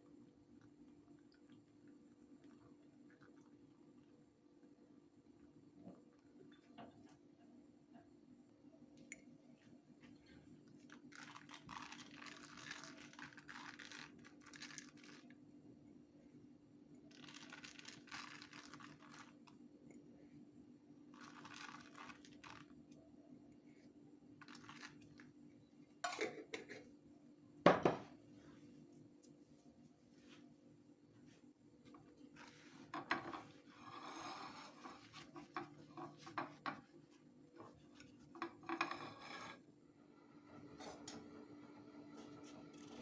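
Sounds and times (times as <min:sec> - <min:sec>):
rustling crinkling noise: 0:09.5 - 0:15.4, 0:17.1 - 0:19.6, 0:21.1 - 0:23.0, 0:24.4 - 0:25.4, 0:28.4 - 0:39.5.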